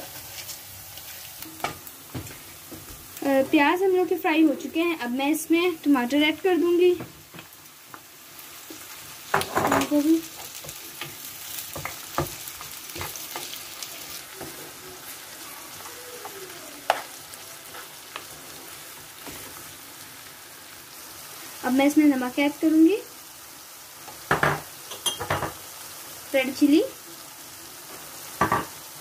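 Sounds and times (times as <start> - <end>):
vegetables sizzling in hot oil: 0.0 - 29.0
wooden spoon knocking and scraping pan: 1.4 - 3.6, 6.9 - 8.0, 8.7 - 13.6, 28.4 - 28.8.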